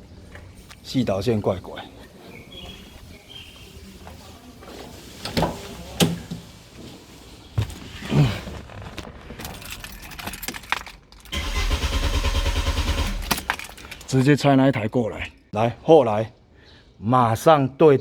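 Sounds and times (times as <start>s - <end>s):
starter cranking engine: 11.3s - 13.5s.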